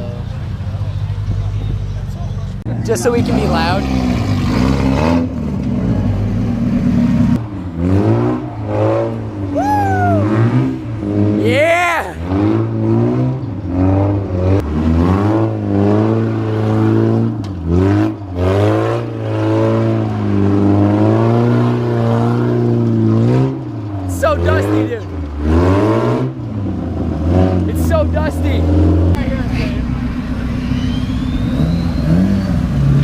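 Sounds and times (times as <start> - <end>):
car engine revving: 0.0 - 33.0
person shouting: 9.6 - 10.4, 11.4 - 12.3.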